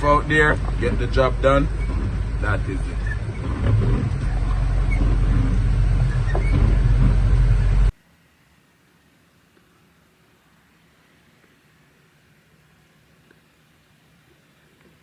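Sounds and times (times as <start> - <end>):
vehicle engine rumbling: 0.0 - 8.0.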